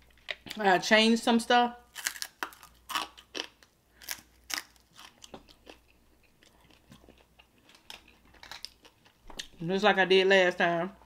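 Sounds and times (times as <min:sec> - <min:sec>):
chewing crispy fried chicken: 0:01.9 - 0:09.6.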